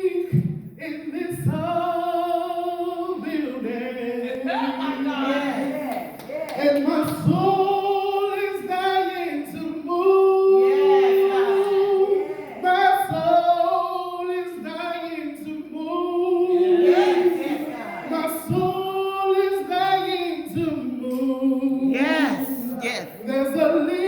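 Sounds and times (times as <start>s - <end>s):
woman singing gospel solo: 22.0s - 23.3s.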